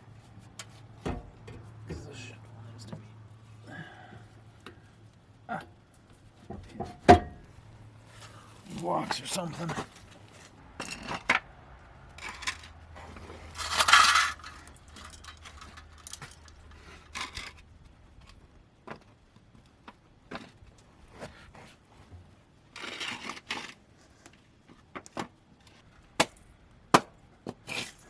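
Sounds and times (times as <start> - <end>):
scraping bursts: 12.1 - 17.6
small metal objects clinking: 13.4 - 17.6.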